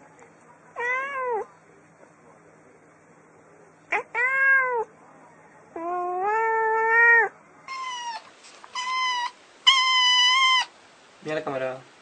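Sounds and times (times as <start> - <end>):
cats meowing: 0.8 - 1.5, 3.9 - 4.9, 5.8 - 10.7.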